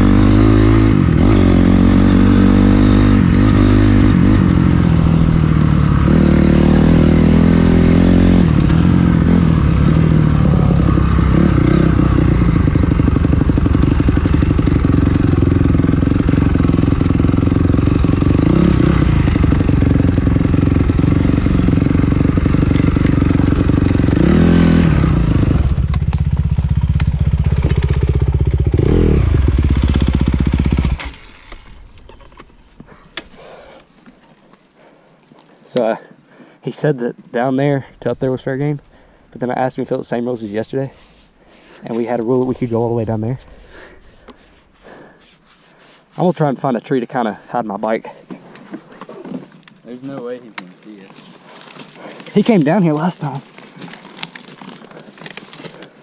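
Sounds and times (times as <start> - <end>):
dirt bike engine revving: 0.0 - 32.3.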